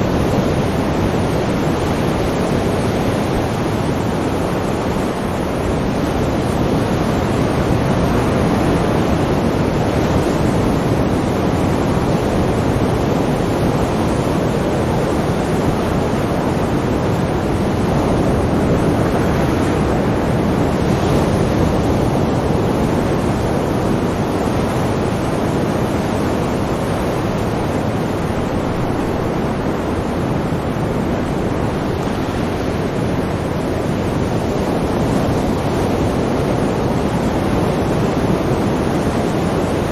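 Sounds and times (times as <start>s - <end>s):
sea waves washing: 0.0s - 39.9s.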